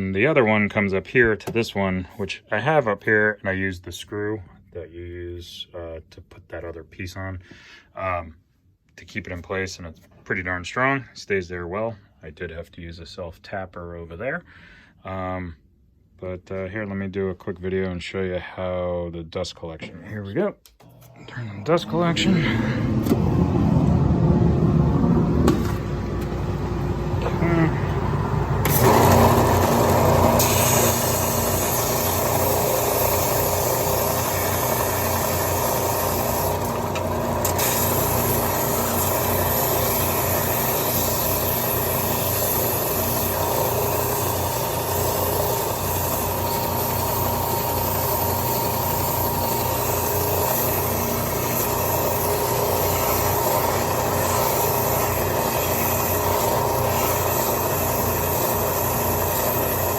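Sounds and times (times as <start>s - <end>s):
motor hum: 20.8s - 59.9s
air rushing through hoses: 21.2s - 58.7s.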